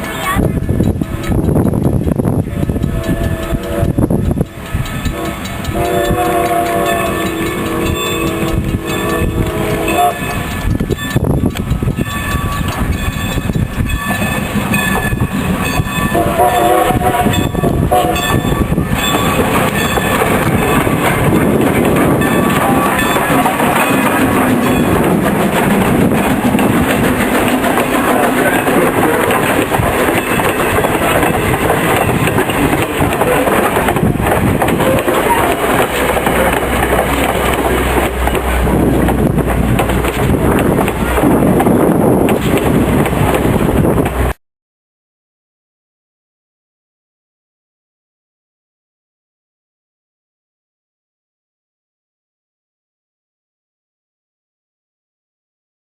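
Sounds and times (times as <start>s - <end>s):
train running along rails: 0.0s - 44.4s
steam locomotive whistle: 2.5s - 10.7s, 16.0s - 20.9s, 34.8s - 38.8s.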